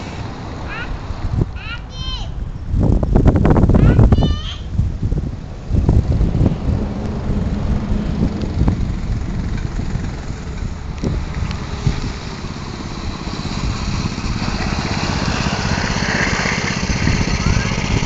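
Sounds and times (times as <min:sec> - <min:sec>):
small engine running: 0:06.8 - 0:18.0.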